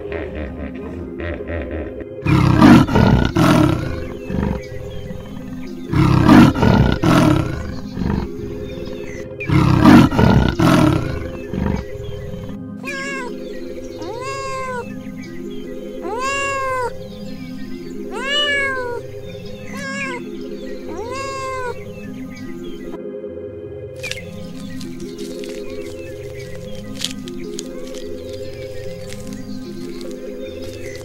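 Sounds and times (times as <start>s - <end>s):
background music: 0.0s - 31.0s
big cat roaring: 2.2s - 13.3s, 20.9s - 21.8s
cat meowing: 12.8s - 13.4s, 14.0s - 15.0s, 16.0s - 17.0s, 18.1s - 19.0s, 19.7s - 20.3s, 20.9s - 21.8s.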